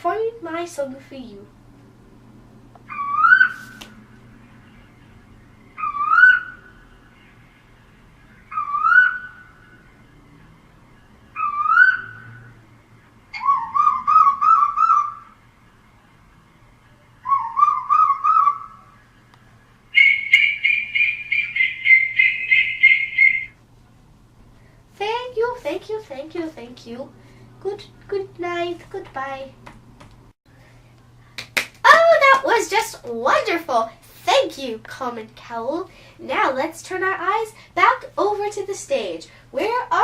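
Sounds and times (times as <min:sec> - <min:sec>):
fast high bird notes: 0:02.9 - 0:03.8, 0:05.7 - 0:07.4, 0:08.4 - 0:09.8, 0:11.4 - 0:12.5, 0:13.3 - 0:15.4, 0:17.2 - 0:19.0, 0:19.9 - 0:23.6
bird bubbling notes: 0:19.9 - 0:23.5.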